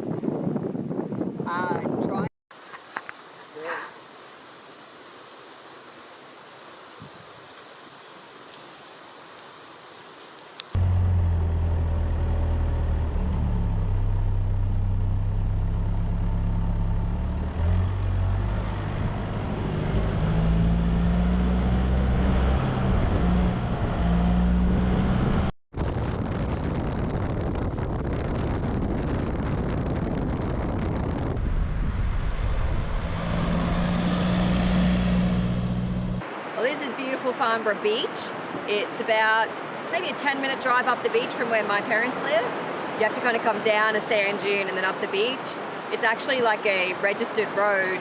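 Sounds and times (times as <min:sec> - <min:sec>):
tyre and road noise: 0:10.6 - 0:37.3
car engine running: 0:10.8 - 0:25.5, 0:32.6 - 0:36.2.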